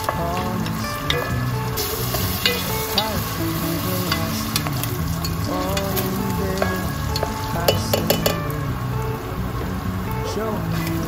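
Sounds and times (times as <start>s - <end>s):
meat and onion sizzling in a pot: 0.0s - 8.4s
background music: 0.0s - 11.0s.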